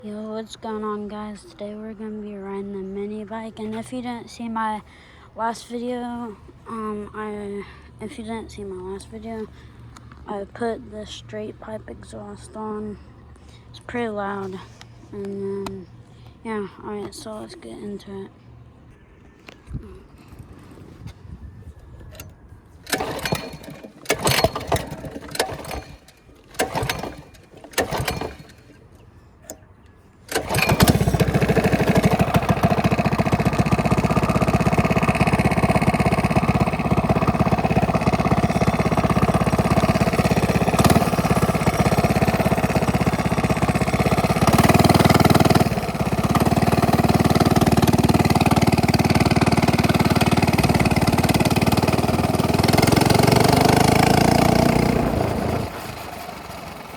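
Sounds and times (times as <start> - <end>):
minibike engine cranking and running: 21.8 - 56.9.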